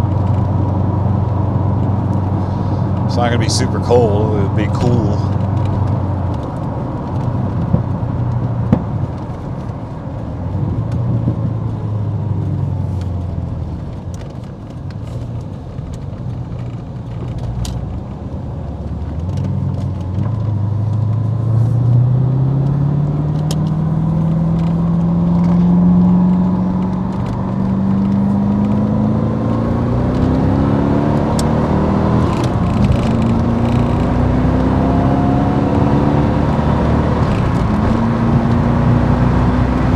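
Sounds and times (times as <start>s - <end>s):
car engine revving: 20.3s - 39.9s.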